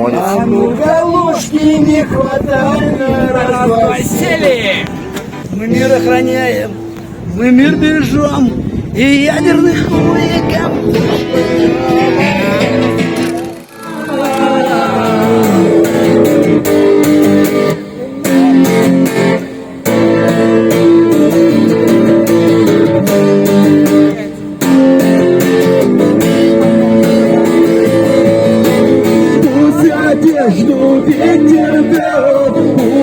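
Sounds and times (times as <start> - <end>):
guitar strummed: 9.5 - 33.0.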